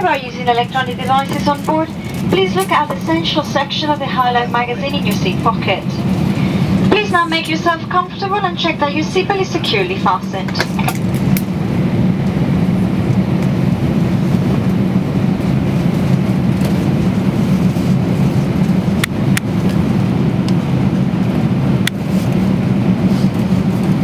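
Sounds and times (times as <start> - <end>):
cabin air supply hum: 0.0 - 24.0.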